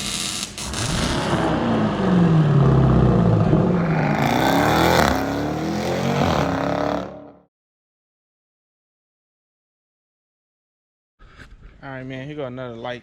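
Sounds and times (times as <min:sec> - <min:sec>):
loud car engine revving: 0:00.6 - 0:07.5.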